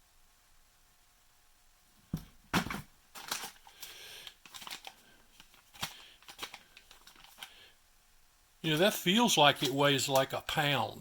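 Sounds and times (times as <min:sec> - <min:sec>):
rustling: 0:02.1 - 0:07.6.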